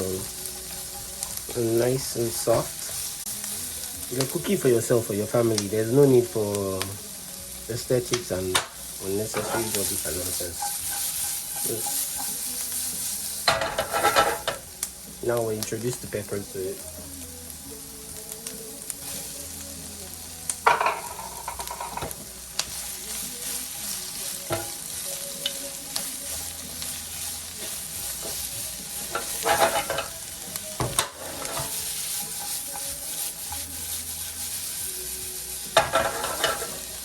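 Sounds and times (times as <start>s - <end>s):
vegetables sizzling in oil: 0.0s - 37.0s
utensil scraping pan: 9.2s - 12.6s, 13.4s - 14.6s, 27.1s - 30.2s, 30.8s - 34.4s, 35.7s - 36.9s.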